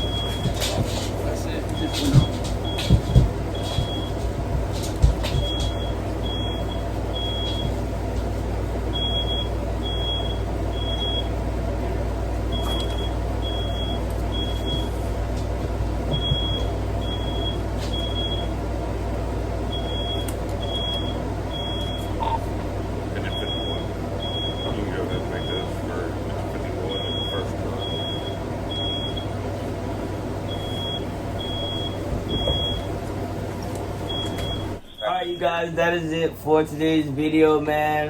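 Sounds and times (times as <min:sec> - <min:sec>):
smoke alarm beeping: 0:00.0 - 0:00.9, 0:01.7 - 0:07.9, 0:08.9 - 0:11.4, 0:12.5 - 0:15.4, 0:16.0 - 0:18.7, 0:19.7 - 0:25.9, 0:26.9 - 0:33.1, 0:33.9 - 0:35.9.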